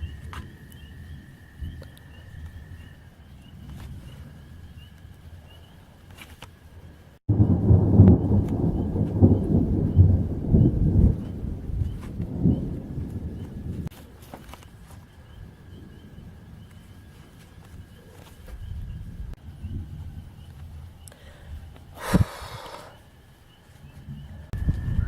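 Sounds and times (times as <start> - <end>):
thunder rumbling: 7.0 - 23.3, 23.9 - 25.0
faint repeated chirping: 14.6 - 21.5.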